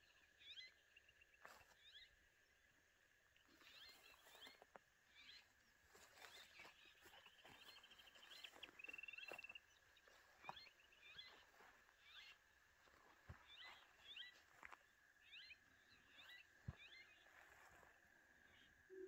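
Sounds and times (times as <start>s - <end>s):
faint birds calling: 0.0s - 19.0s
faint steady high tone: 13.6s - 19.0s.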